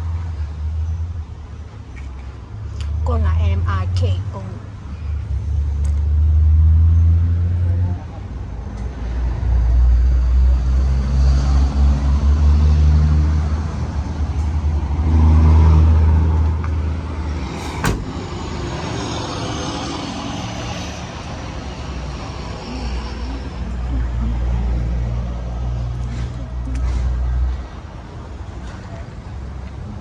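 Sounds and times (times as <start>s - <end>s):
truck engine humming: 9.7s - 30.0s.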